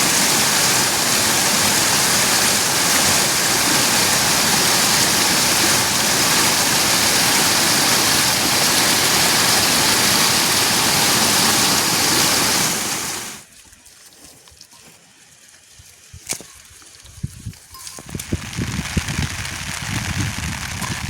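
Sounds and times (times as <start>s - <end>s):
loud rush of water: 0.0s - 13.5s.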